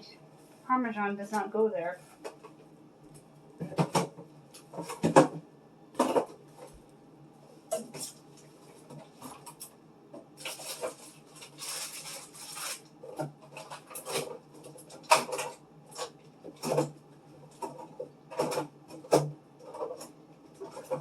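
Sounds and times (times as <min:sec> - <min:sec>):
refrigerator hum: 0:00.0 - 0:21.0
food containers knocking and clattering: 0:03.6 - 0:06.8, 0:13.0 - 0:21.0
packages rustling: 0:10.4 - 0:16.2.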